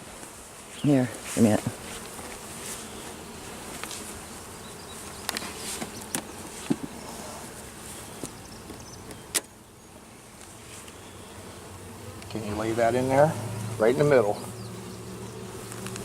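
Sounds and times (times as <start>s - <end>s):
bees buzzing around a hive: 0.0s - 16.0s.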